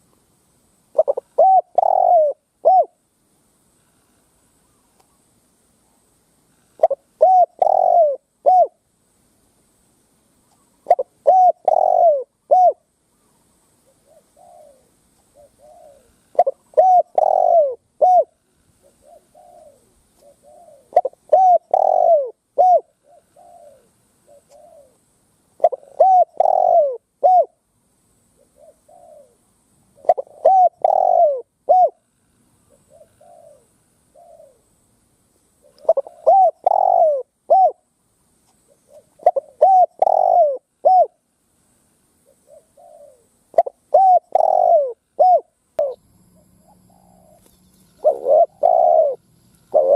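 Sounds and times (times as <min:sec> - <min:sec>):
dove cooing: 0:00.9 - 0:03.0, 0:06.7 - 0:08.8, 0:10.6 - 0:25.0, 0:25.6 - 0:27.6, 0:28.4 - 0:34.7, 0:35.6 - 0:37.9, 0:38.6 - 0:41.2, 0:42.2 - 0:49.9.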